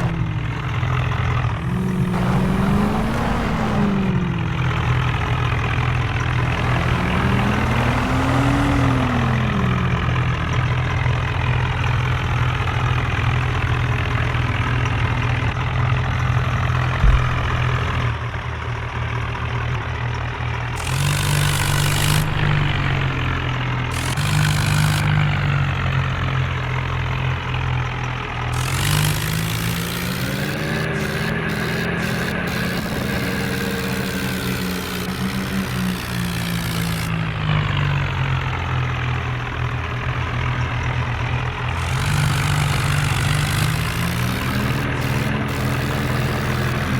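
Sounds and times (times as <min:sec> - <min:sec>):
diesel tractor engine revving: 0:00.0 - 0:46.9
sharp click: 0:17.0 - 0:18.0.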